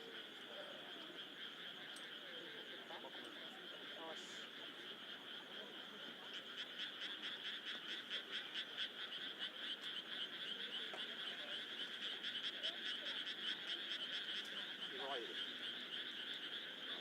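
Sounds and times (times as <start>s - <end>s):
chorus of frogs croaking: 0.0s - 17.0s.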